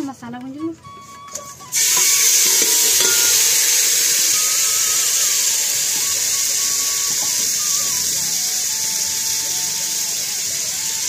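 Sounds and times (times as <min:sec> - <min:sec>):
spice paste sizzling in oil: 0:01.7 - 0:11.0.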